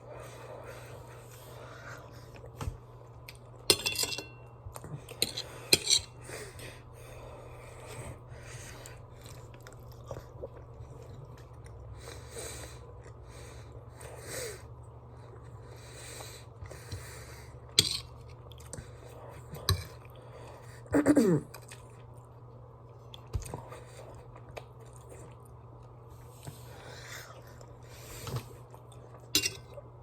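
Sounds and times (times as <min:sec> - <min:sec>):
steady low hum: 0:00.0 - 0:30.0
person chewing food: 0:07.4 - 0:13.9, 0:21.5 - 0:30.0
fork clinking against dish: 0:29.4 - 0:29.7.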